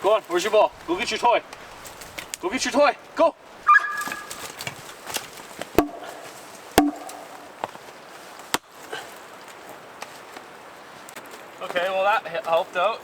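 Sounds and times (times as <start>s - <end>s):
axe chopping wood: 4.1s - 7.8s, 8.5s - 8.7s.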